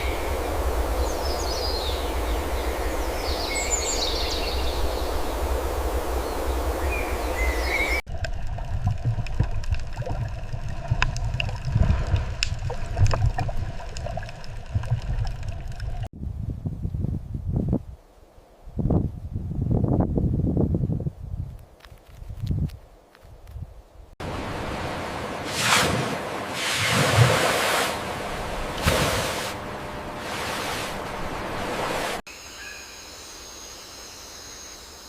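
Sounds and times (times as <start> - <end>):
low rumbling wind-like noise: 0.0 - 32.2
rustles and clicks: 21.5 - 23.6
rushing water: 24.2 - 32.2.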